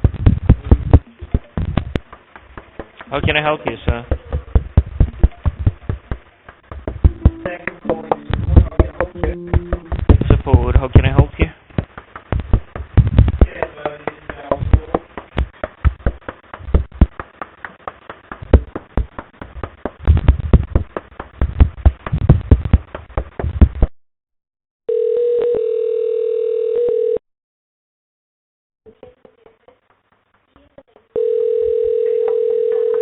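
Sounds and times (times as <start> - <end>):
telephone line tone: 24.9 - 27.2, 31.2 - 33.0.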